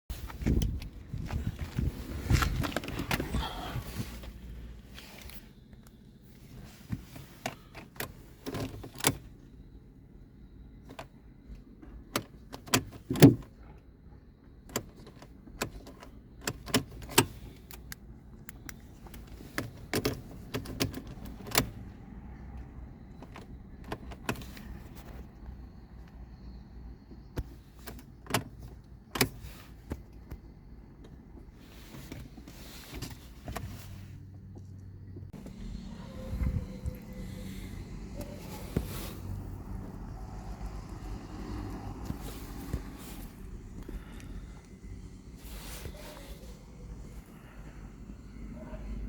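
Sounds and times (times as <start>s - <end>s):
low steady hum: 33.8s - 41.3s.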